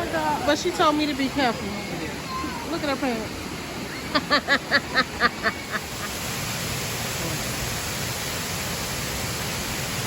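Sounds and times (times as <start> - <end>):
waterfall rushing water: 0.0 - 10.0
person laughing: 4.1 - 6.1.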